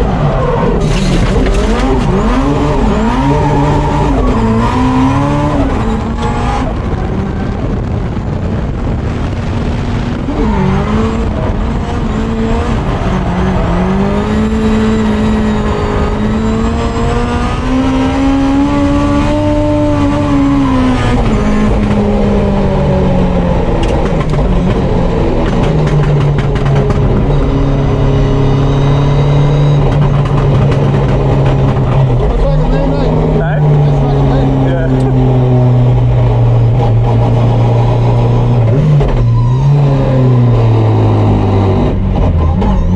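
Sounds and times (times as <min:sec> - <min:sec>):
car engine revving under load: 0:00.0 - 0:42.9.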